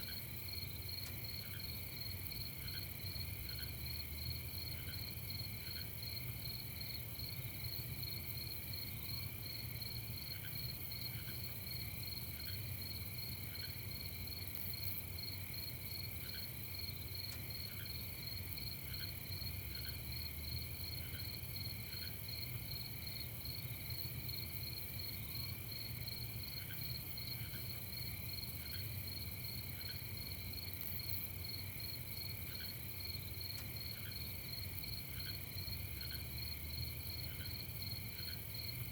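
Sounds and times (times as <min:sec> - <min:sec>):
crickets trilling: 0:00.1 - 0:38.9.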